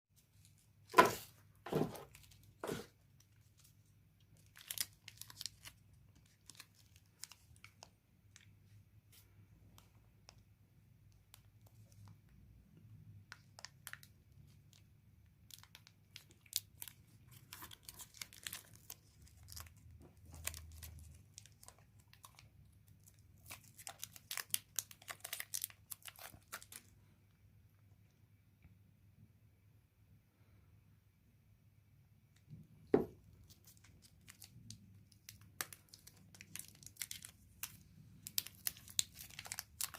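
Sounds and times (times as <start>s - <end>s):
wrapper crinkling and crunching: 1.9s - 8.5s, 13.6s - 26.9s, 33.4s - 39.9s.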